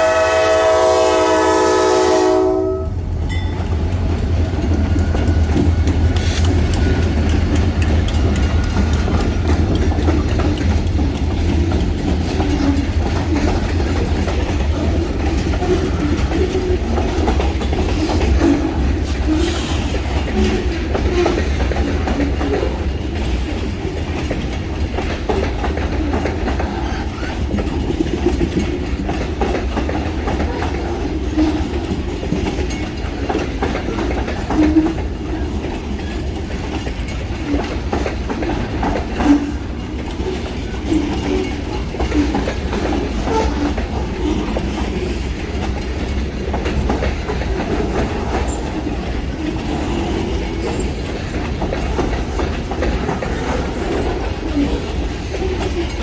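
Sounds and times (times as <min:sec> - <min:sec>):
freight train rumbling past: 0:00.0 - 0:56.0
wheels clacking over rail joints: 0:00.1 - 0:56.0.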